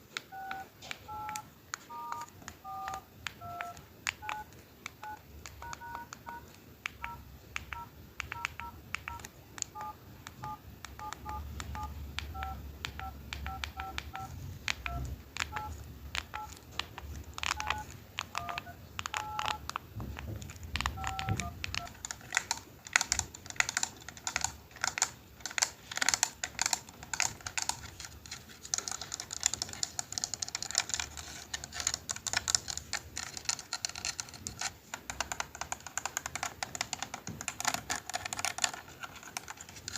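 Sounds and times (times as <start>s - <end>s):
phone keypad dialing beeps: 0.3s - 16.6s, 17.4s - 19.8s, 20.8s - 27.8s
plastic keys clicking: 21.0s - 39.9s.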